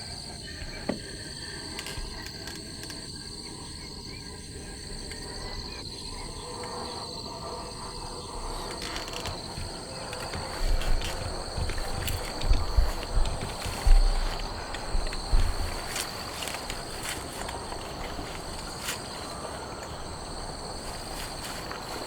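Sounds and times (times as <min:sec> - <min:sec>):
insect chorus trilling: 0:00.0 - 0:22.0
low thumps: 0:08.5 - 0:22.0.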